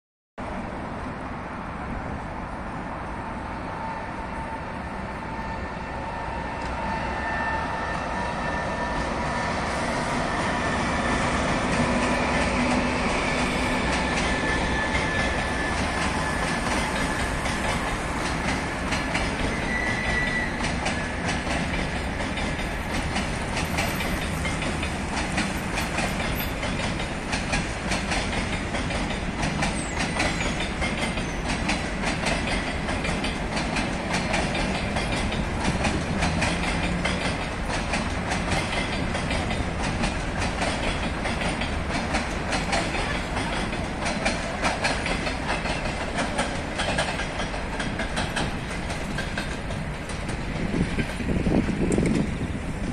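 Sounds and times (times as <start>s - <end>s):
train rolling over bridge: 0.4s - 52.9s
high wheel squeal: 3.2s - 17.9s, 19.0s - 21.4s, 29.6s - 31.8s
wheels clattering over rail joints: 9.7s - 52.9s.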